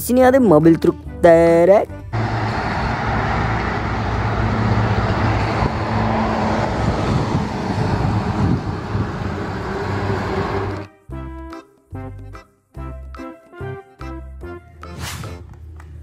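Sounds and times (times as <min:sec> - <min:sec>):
diesel engine droning: 0:02.1 - 0:10.9
tyre and road noise: 0:02.1 - 0:10.9.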